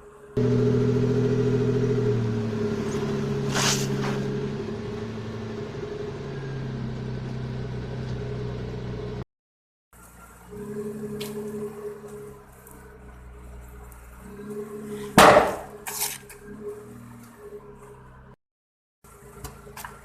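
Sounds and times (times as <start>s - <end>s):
car engine running: 0.4s - 9.2s, 10.0s - 18.4s.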